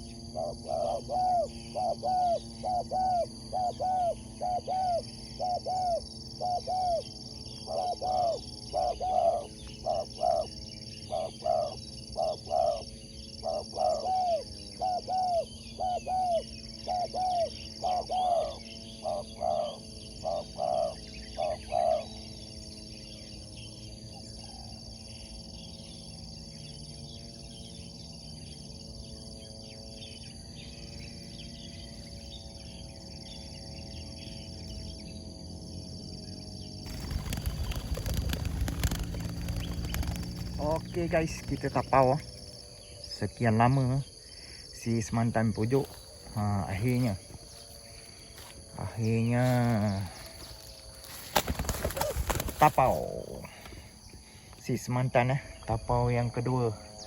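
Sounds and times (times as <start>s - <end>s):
dove cooing: 0.0s - 22.3s, 36.8s - 54.5s
steady high-pitched whine: 0.0s - 57.0s.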